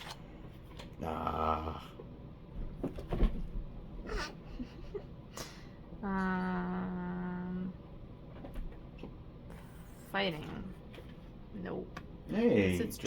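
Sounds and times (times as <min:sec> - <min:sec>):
person humming or moaning: 0:01.0 - 0:02.0, 0:06.0 - 0:07.8.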